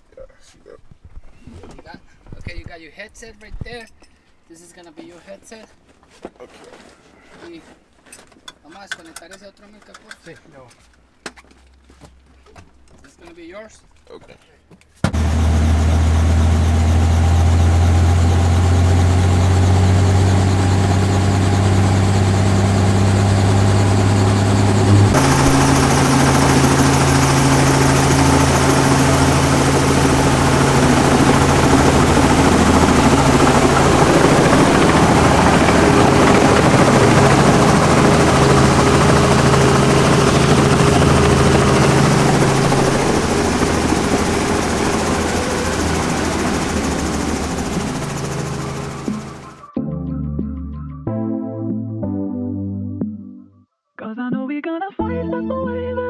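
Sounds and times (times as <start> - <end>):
helicopter rotor drone: 15.1 - 49.6.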